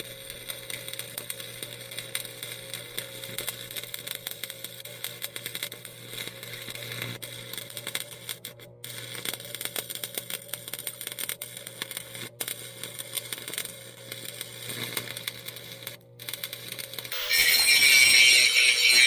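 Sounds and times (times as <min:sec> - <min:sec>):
arc welding crackle: 0:00.1 - 0:19.0
loud power tool: 0:17.1 - 0:19.0.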